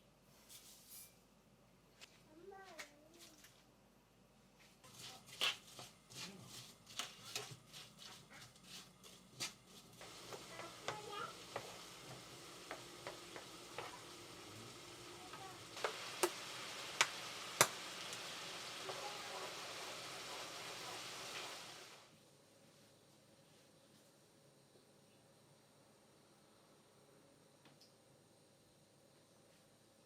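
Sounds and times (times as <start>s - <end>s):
steady hiss: 9.9s - 24.3s.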